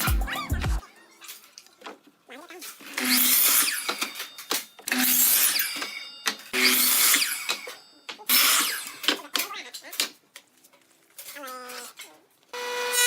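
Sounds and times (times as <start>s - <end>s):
woodworking tool cutting wood: 2.8s - 4.2s, 4.9s - 6.0s, 6.6s - 9.5s, 12.6s - 13.0s.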